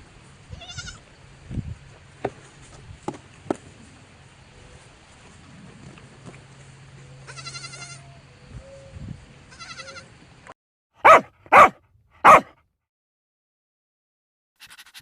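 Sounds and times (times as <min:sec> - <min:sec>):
faint quavering bleats: 0:07.3 - 0:08.2, 0:09.5 - 0:10.1
dog barking loudly: 0:11.0 - 0:12.5.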